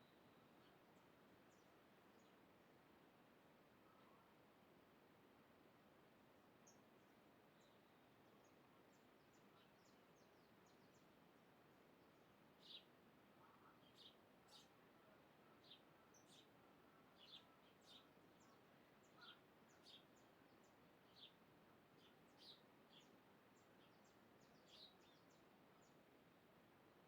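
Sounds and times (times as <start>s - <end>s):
soft background hiss: 0.0s - 27.0s
faint high bird chirps: 17.1s - 21.4s.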